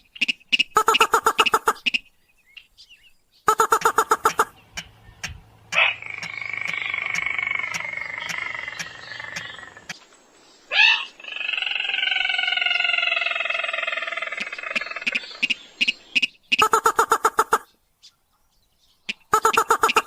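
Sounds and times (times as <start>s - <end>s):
bird calls falling in pitch: 5.8s - 9.9s.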